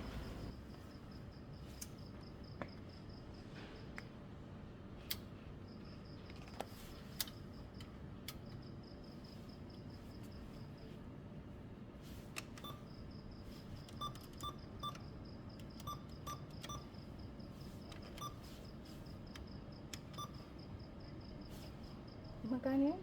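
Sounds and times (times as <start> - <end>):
keypad button clicks and beeps: 12.5 - 12.9, 13.8 - 17.0, 17.9 - 18.4, 19.3 - 20.5.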